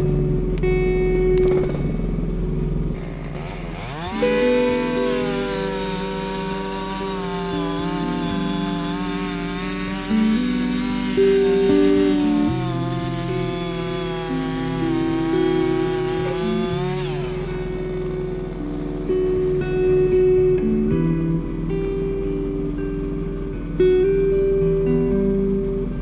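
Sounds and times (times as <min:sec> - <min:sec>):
background music: 0:00.0 - 0:26.0
mini excavator engine revving: 0:01.4 - 0:02.0, 0:02.9 - 0:20.3.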